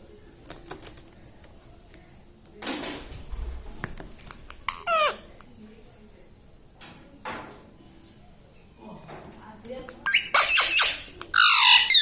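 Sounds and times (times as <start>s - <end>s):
parakeet harsh rasp: 4.7s - 5.3s, 10.0s - 12.0s
parakeet high call dropping in pitch: 10.1s - 12.0s.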